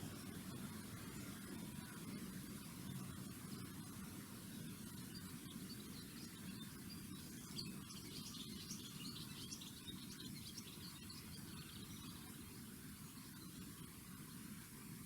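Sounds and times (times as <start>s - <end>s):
low background hum: 0.0s - 15.0s
small birds chirping: 4.5s - 13.8s.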